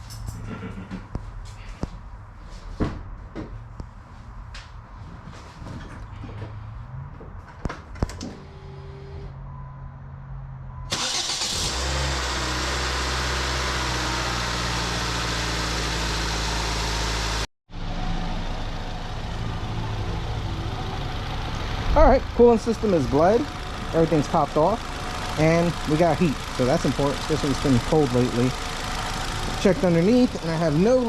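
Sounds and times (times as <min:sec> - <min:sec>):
car engine starting: 0:10.9 - 0:31.0
car engine idling: 0:11.0 - 0:31.0.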